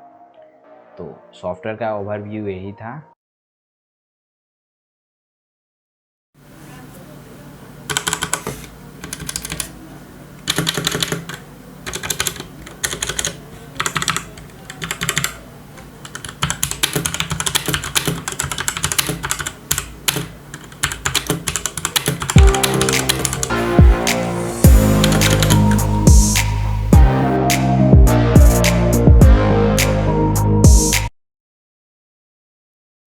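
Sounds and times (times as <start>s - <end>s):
mechanical keyboard typing: 7.9s - 9.8s, 10.4s - 15.4s, 16.0s - 23.5s, 24.8s - 26.4s.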